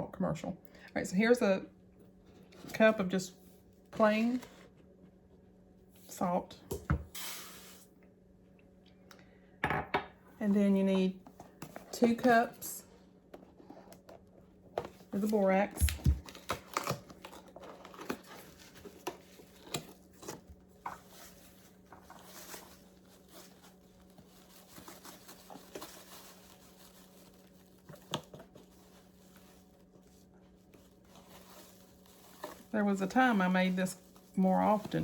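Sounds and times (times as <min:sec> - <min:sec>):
powder rustling: 0:11.1 - 0:35.0.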